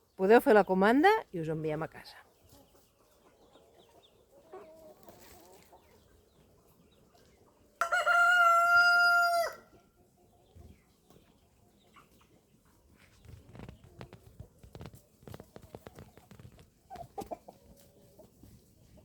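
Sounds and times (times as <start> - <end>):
faint hen clucking: 1.8 - 19.0
rooster crowing: 7.8 - 9.7.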